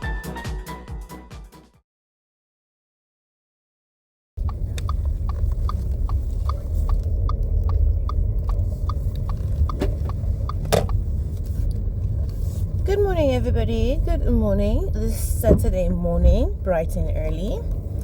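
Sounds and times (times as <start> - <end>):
car engine and road rumble: 4.4 - 18.0
turn indicator ticking: 4.4 - 18.0.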